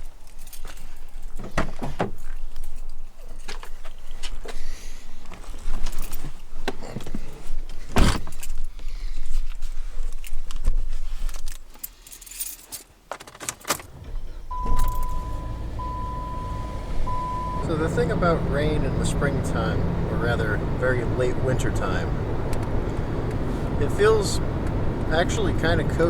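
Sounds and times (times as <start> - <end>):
keys jangling: 0.1 - 1.6, 11.3 - 13.9, 14.7 - 15.1
car engine running: 13.9 - 26.0
dashboard warning chime beeps: 14.0 - 19.0.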